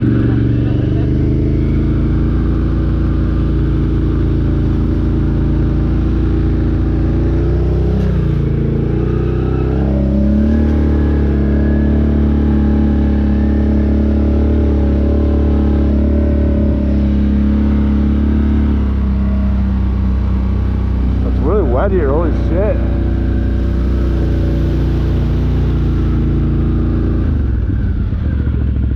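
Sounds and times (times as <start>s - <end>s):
off-road vehicle engine running: 0.0s - 28.9s.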